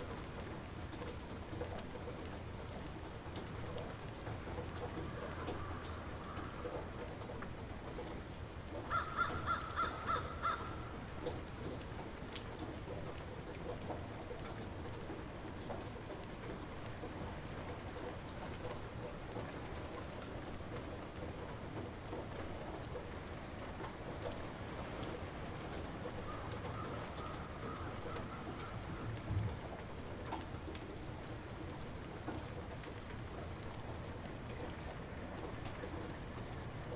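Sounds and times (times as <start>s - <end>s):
light rain falling: 0.0s - 36.9s.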